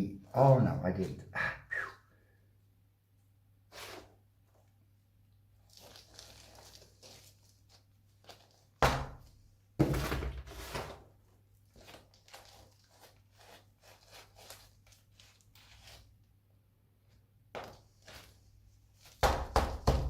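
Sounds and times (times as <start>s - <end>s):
potting mix rustling: 3.6s - 4.8s, 5.4s - 16.2s, 17.1s - 19.2s.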